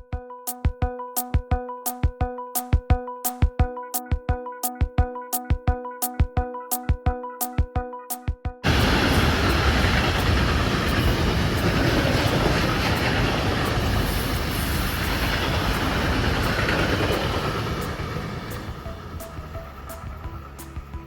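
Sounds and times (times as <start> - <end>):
freight train passing: 8.6 - 21.0.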